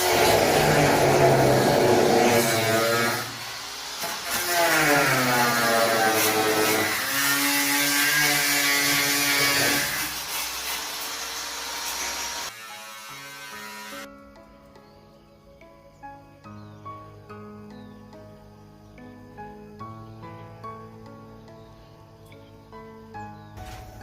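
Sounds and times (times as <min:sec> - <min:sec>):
power tool cutting wood: 0:00.0 - 0:14.1.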